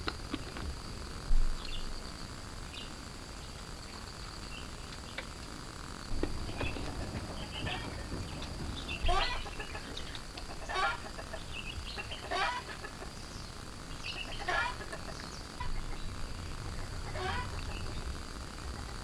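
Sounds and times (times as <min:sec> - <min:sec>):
chicken clucking: 0:06.3 - 0:13.3, 0:14.0 - 0:18.0.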